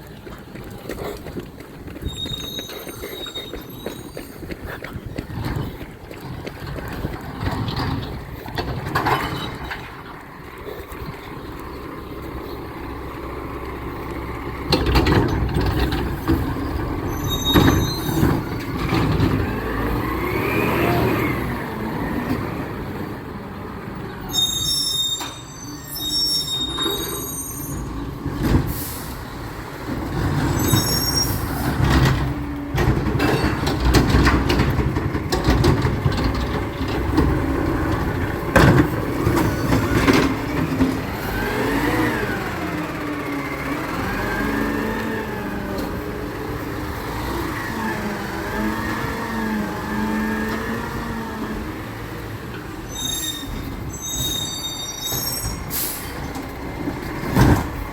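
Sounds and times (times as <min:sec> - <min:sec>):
truck engine running: 0:00.0 - 0:24.3, 0:27.2 - 0:52.9
high squeals: 0:02.0 - 0:04.4, 0:16.6 - 0:18.6, 0:24.2 - 0:29.1, 0:30.4 - 0:31.8, 0:52.8 - 0:56.2.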